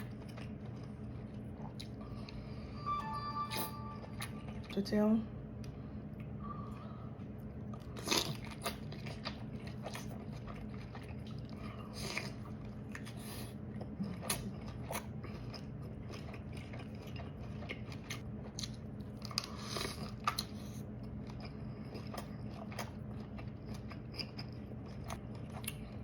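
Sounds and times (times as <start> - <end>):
steady low hum: 0.0 - 26.0
biting and chewing lobster: 7.5 - 26.0.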